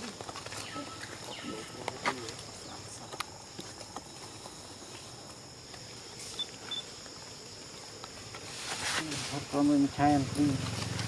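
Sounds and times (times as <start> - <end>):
insect drone: 0.0 - 11.0.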